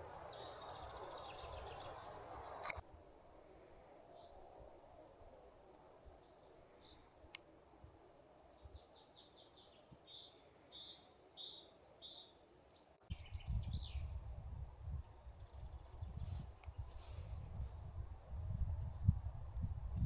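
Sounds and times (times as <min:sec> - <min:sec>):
songbird singing high notes: 0:00.0 - 0:02.8
forest ambience: 0:00.0 - 0:13.5.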